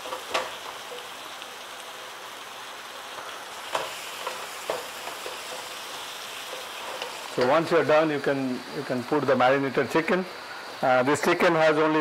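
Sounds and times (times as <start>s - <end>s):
masala sizzling in a pan: 0.0s - 12.0s.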